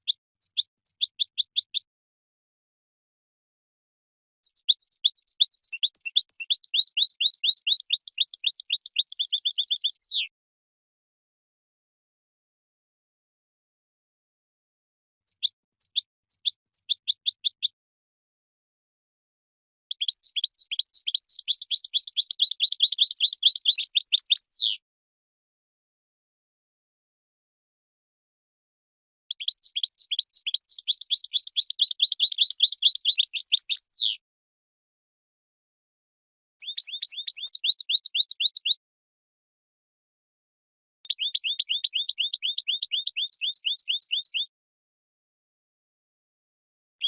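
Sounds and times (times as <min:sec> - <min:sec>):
goldfinch twittering song: 0:00.0 - 0:01.9, 0:04.4 - 0:10.3, 0:15.3 - 0:17.8, 0:19.9 - 0:24.8, 0:29.3 - 0:34.2, 0:36.6 - 0:38.8, 0:41.1 - 0:44.5.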